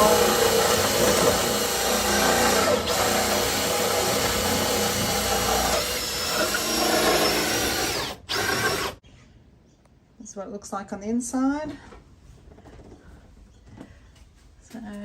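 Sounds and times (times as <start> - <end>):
power drill running: 0.0 - 9.0.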